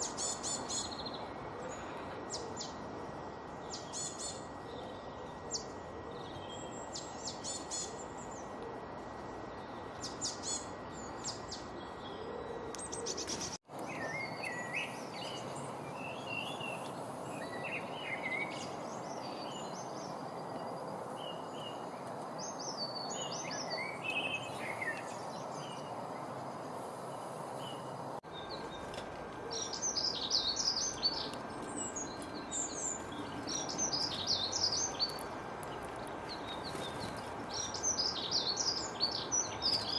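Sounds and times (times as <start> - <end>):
birds chirping and singing: 9.6 - 26.2, 27.6 - 39.9
background hiss: 13.0 - 39.9.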